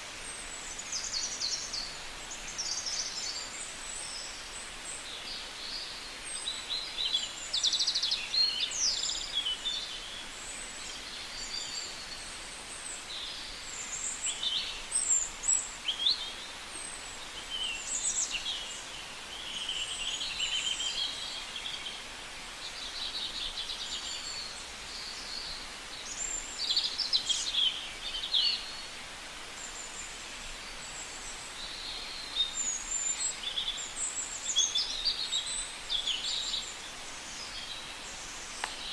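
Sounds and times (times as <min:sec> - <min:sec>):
steady outdoor hiss: 0:00.0 - 0:38.9
birds chirping: 0:17.4 - 0:22.0, 0:30.9 - 0:38.9.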